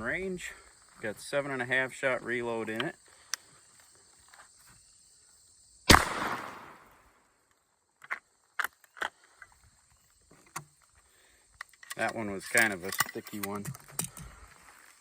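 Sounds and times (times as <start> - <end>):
shotgun action clicks: 5.9 - 6.8
shotgun shot with echo: 5.9 - 7.0.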